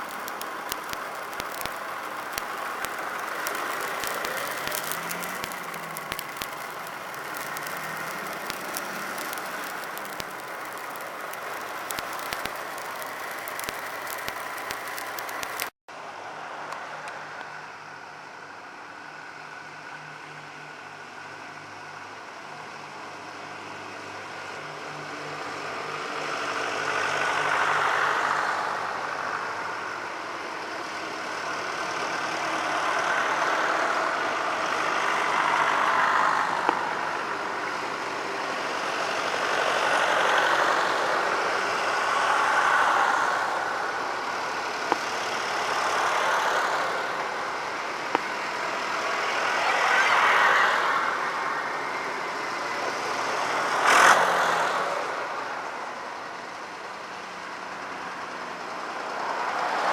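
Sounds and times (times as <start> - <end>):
tractors driving past: 0.0 - 15.7, 22.8 - 59.9
sharp clicks: 0.0 - 15.8
engine hum: 0.0 - 59.9.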